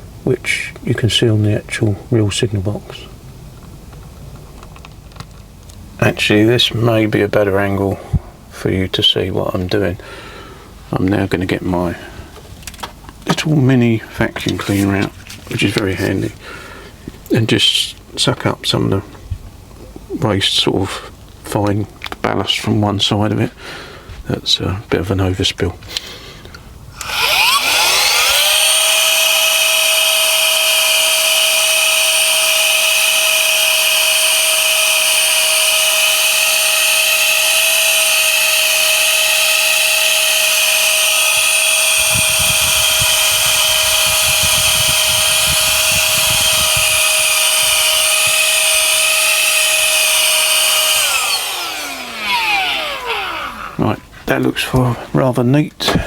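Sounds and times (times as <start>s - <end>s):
mini vacuum cleaner whining: 26.9s - 54.2s.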